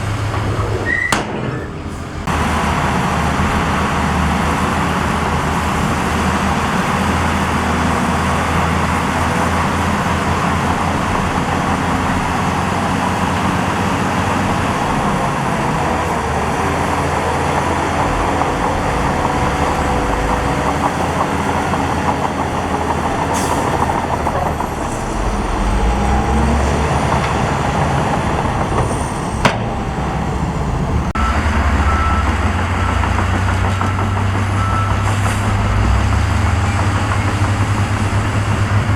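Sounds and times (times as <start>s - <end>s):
diesel machinery engine rumble: 0.0s - 38.9s
reversing alarm beeps: 31.2s - 35.3s.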